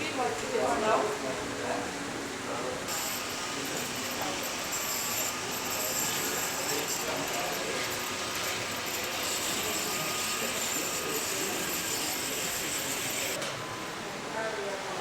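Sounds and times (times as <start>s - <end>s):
model trains running: 2.9s - 13.4s.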